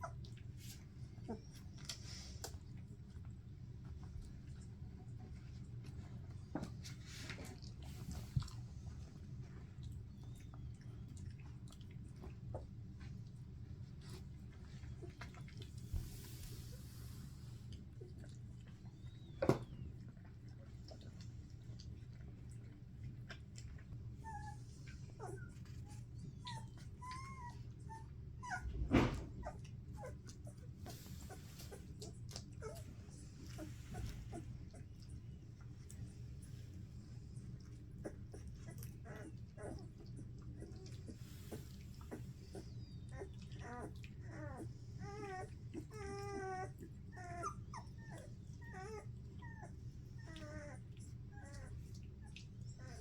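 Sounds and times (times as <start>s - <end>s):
puppies squeaking and whimpering: 25.2s - 34.9s, 40.6s - 50.8s.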